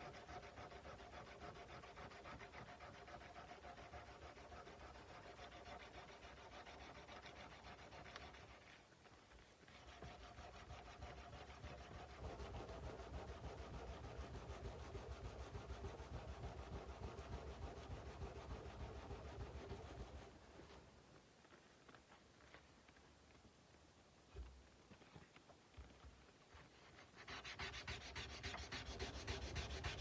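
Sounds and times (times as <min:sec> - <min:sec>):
sandpaper rubbing on steel blade: 0:00.0 - 0:08.8, 0:09.7 - 0:20.8, 0:27.0 - 0:30.0.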